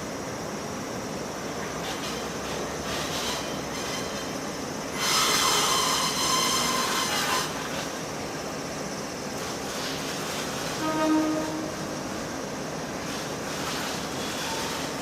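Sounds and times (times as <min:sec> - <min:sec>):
freight train wagons rumbling: 0:00.0 - 0:08.5
high metallic wheel squeal: 0:05.0 - 0:07.5, 0:10.8 - 0:11.8, 0:14.2 - 0:14.9.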